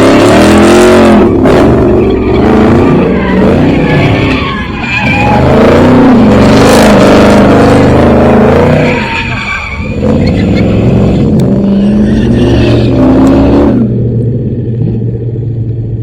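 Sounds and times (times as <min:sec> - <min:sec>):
car engine revving hard: 0:00.0 - 0:14.0
tyre squeal: 0:00.3 - 0:13.2.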